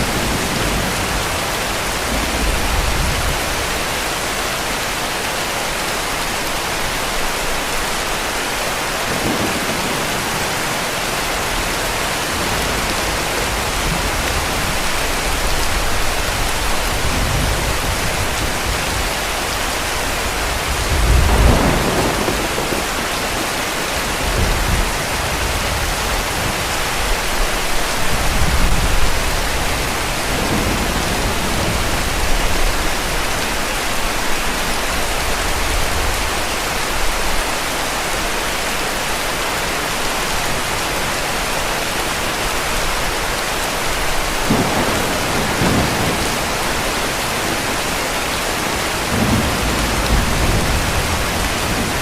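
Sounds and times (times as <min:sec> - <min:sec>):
heavy rain: 0:00.0 - 0:52.0
distant thunder rumbling: 0:20.2 - 0:27.5, 0:44.1 - 0:52.0.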